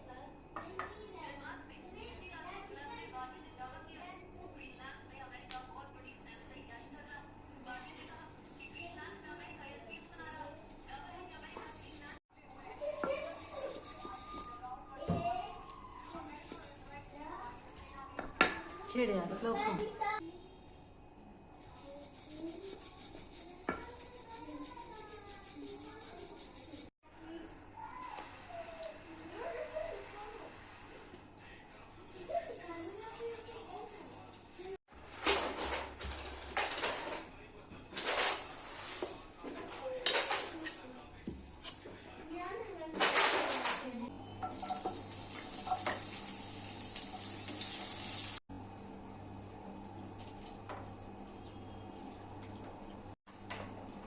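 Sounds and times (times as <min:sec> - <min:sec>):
rhythmic scraping strokes: 0:11.2 - 0:14.7, 0:21.6 - 0:26.9.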